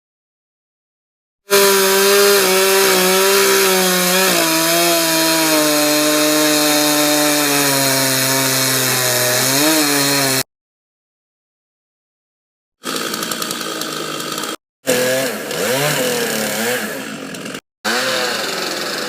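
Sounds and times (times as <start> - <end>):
chainsaw cutting wood: 1.5 - 10.5, 12.8 - 19.0.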